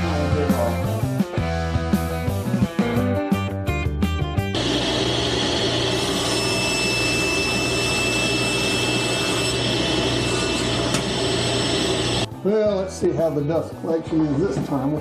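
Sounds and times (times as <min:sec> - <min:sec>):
table saw running: 0:04.6 - 0:12.3.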